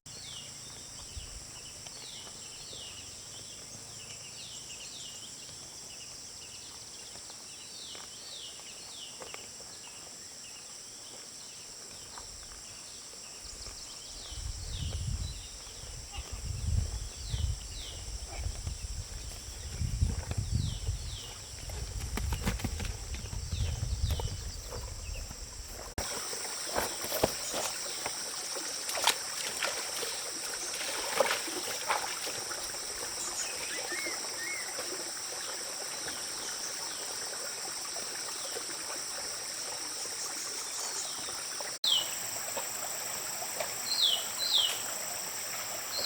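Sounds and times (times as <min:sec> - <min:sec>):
low rumbling thuds: 0:19.6 - 0:26.0.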